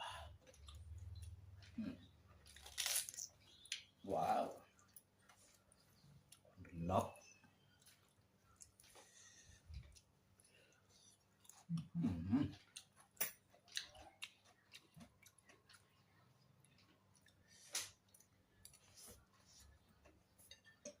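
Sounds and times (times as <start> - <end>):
chewing with wet mouth clicks: 0.4 - 1.7, 12.6 - 18.8.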